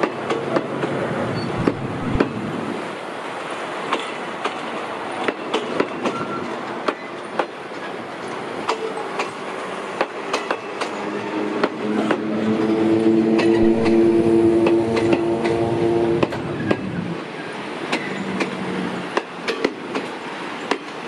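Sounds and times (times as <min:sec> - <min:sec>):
droning hum: 0:01.5 - 0:02.8, 0:13.4 - 0:15.4
train wheels clacking: 0:03.9 - 0:12.4, 0:17.8 - 0:21.0.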